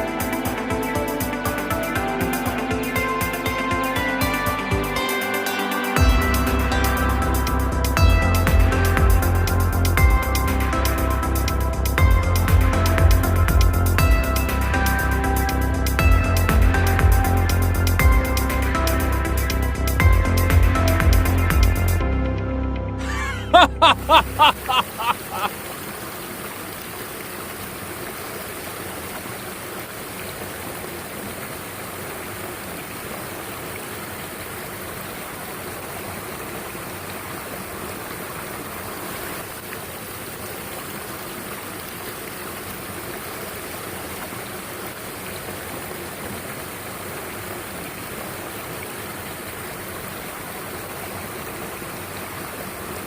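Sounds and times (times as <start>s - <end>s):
stream water rushing: 0.0s - 10.0s, 23.2s - 53.0s.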